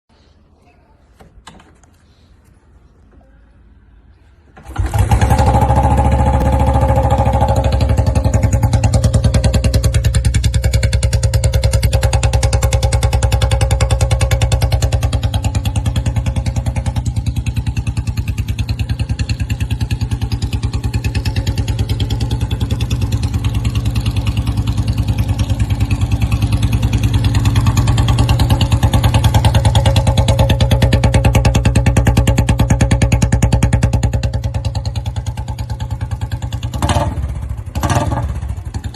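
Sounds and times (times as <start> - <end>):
motorcycle engine running: 4.6 - 38.9.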